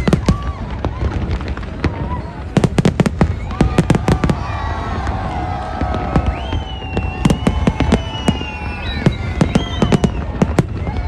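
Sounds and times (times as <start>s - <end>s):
fireworks bangs: 0.0s - 11.0s
high whistle: 6.0s - 10.6s
low rumble: 7.0s - 10.3s
sustained mix of tones: 7.1s - 10.2s.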